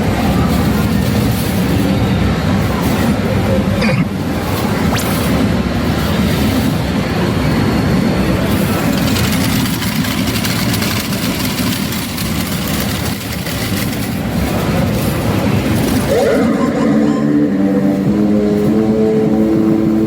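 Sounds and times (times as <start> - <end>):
gaming machines roaring: 0.0 - 20.0
scattered clicks: 8.9 - 14.2.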